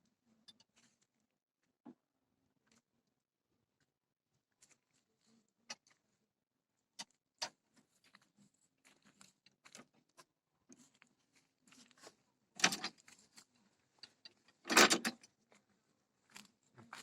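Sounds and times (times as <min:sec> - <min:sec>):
light clicks and knocks of handling: 0:07.0 - 0:15.7.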